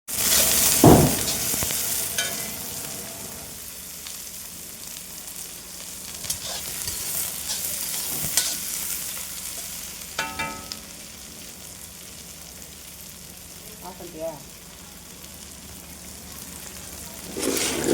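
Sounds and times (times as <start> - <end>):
food sizzling in a hot pan: 0.1 - 17.9
heavy thump: 0.8 - 1.3
metal spoon knocking against pan: 10.2 - 10.7.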